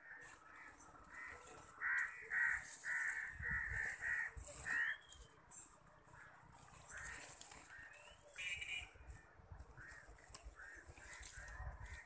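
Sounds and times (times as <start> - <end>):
bird calling loudly: 0.0 - 5.4.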